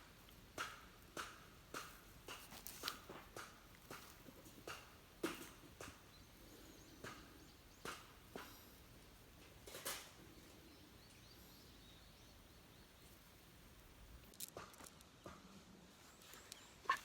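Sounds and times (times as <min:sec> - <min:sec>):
light knocks and crunches: 0:01.7 - 0:05.9.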